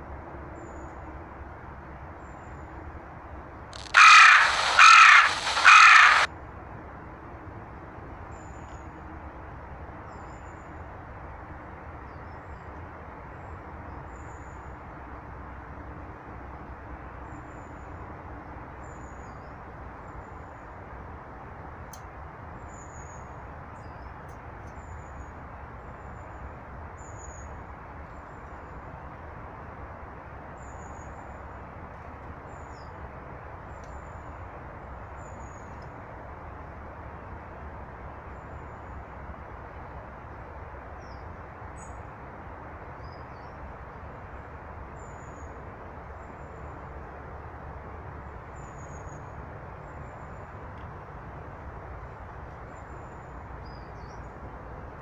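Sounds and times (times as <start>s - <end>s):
small birds calling: 3.8s - 6.3s
steady rushing background noise: 3.8s - 6.3s.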